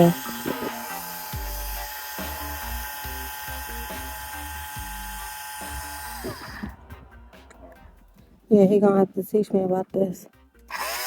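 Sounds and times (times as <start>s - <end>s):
electric water pump whining: 0.0s - 7.7s, 10.7s - 11.0s.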